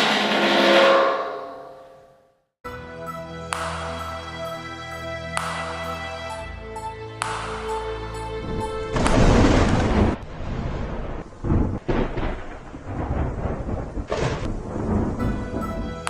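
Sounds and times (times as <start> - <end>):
deep rolling rumble: 8.4 - 16.0.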